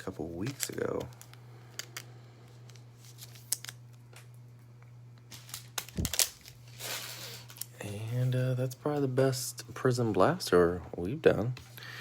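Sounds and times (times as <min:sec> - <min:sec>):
cards clicking and tapping: 0:00.4 - 0:04.3.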